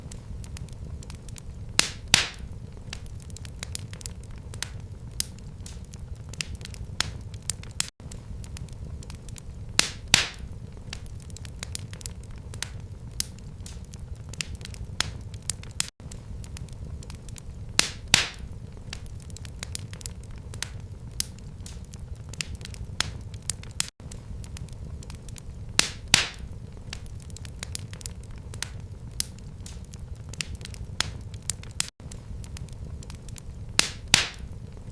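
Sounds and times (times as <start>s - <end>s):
wood fire crackling: 0.0s - 34.9s
loud sharp pop of fire: 1.7s - 3.9s, 9.8s - 11.9s, 17.7s - 19.9s, 20.5s - 27.9s, 33.8s - 34.6s.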